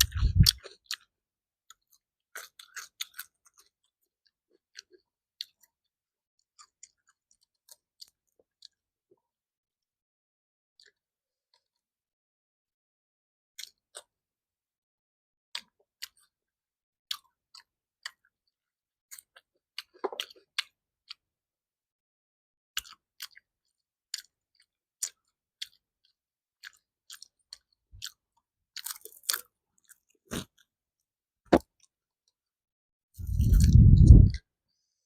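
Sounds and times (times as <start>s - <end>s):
chewing food mouth smacks: 0.0s - 1.1s, 13.6s - 14.1s, 19.1s - 21.2s, 22.8s - 23.4s, 24.2s - 25.8s, 26.6s - 28.2s, 28.8s - 30.6s, 33.2s - 34.4s.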